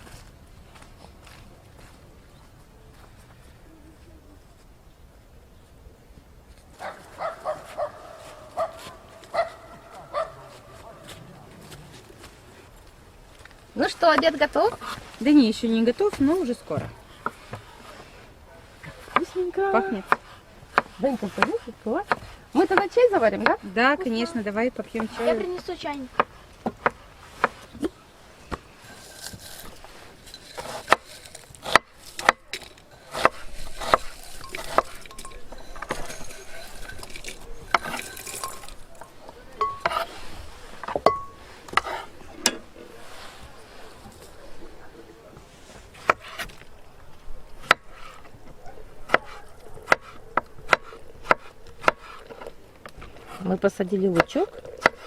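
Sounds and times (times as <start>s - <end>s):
sharp chopping strokes: 30.6s - 35.0s.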